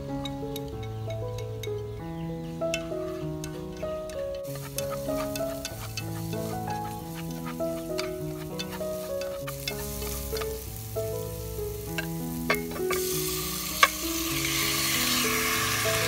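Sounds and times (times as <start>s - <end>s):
background music with simple melody: 0.0s - 16.0s
meat sizzling in a pot: 4.4s - 16.0s.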